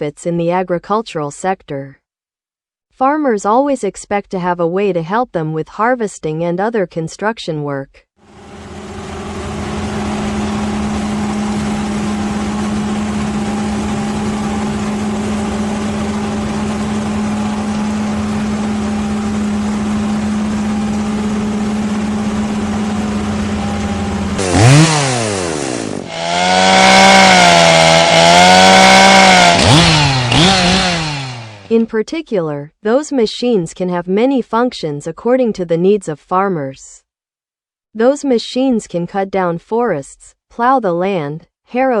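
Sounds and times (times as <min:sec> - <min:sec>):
chainsaw engine running: 0:08.2 - 0:31.8.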